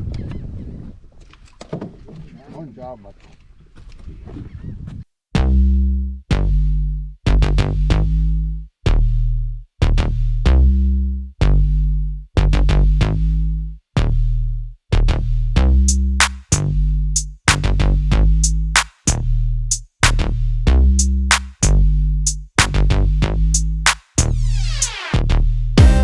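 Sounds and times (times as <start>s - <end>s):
hi-hats: 18.4s - 20.3s, 21.0s - 25.2s, 25.8s - 26.0s
electronic music with bass beat: 24.2s - 26.0s.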